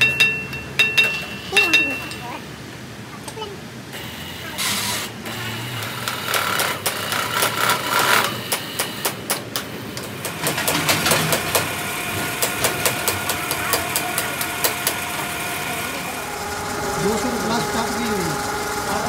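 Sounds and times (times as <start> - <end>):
metalworking machine whining: 3.9 - 19.0.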